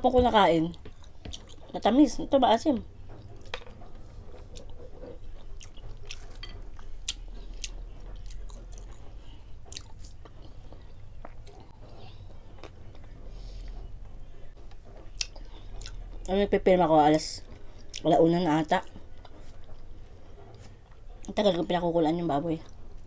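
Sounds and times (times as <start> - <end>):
steady low hum: 0.0 - 23.0
wet chewing clicks and smacks: 0.8 - 1.7, 4.4 - 11.8, 15.1 - 16.3.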